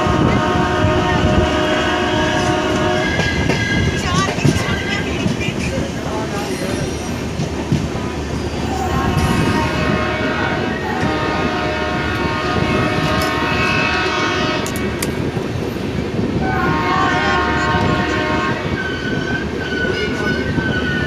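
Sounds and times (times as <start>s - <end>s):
train horn blasts: 0.0s - 3.9s, 8.9s - 15.2s, 16.4s - 21.0s
train rumbling: 0.0s - 21.0s.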